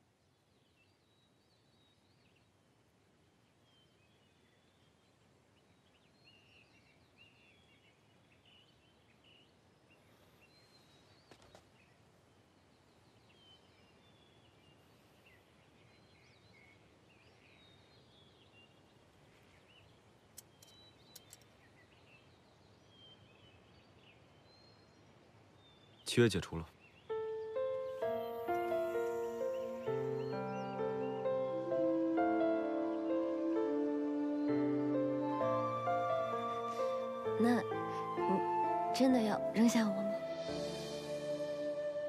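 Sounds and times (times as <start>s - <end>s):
faint bird chirps: 3.3s - 42.0s
soft clicks: 20.3s - 21.5s.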